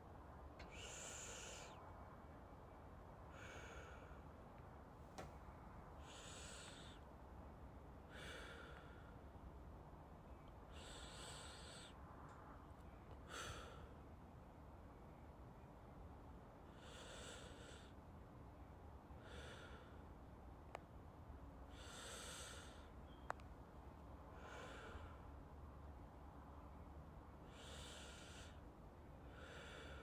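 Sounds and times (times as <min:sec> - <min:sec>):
soft slow breathing: 0:00.6 - 0:02.2, 0:03.2 - 0:09.5, 0:10.6 - 0:14.1, 0:16.6 - 0:18.1, 0:19.1 - 0:20.2, 0:21.7 - 0:23.2, 0:24.2 - 0:25.6, 0:27.4 - 0:30.0
faint click: 0:20.7 - 0:20.9, 0:23.2 - 0:23.5.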